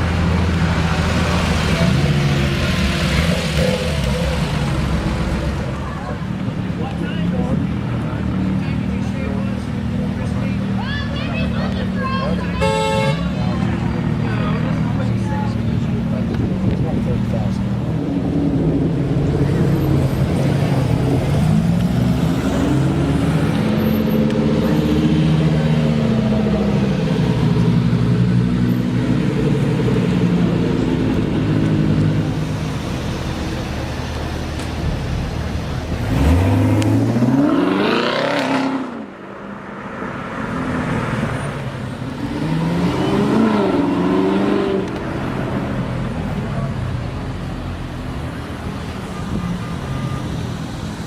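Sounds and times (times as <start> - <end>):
supercar engine revving: 35.8 - 39.1.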